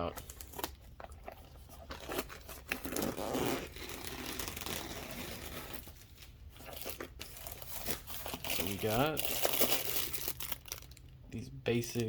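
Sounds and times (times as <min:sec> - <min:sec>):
packaging tearing and crinkling: 0:00.0 - 0:11.2.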